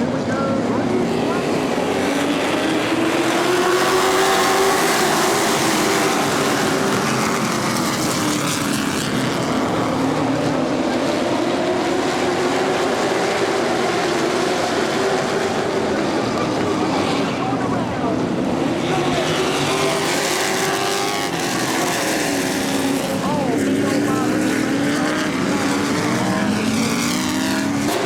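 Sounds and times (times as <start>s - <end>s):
race car engines: 0.0s - 28.0s.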